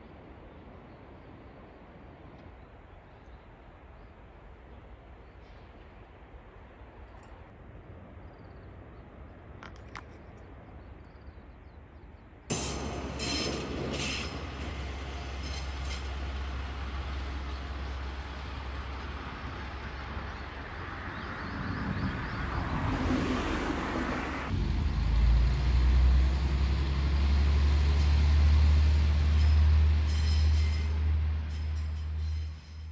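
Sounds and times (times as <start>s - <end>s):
diesel railcar engine drone: 12.5s - 32.9s.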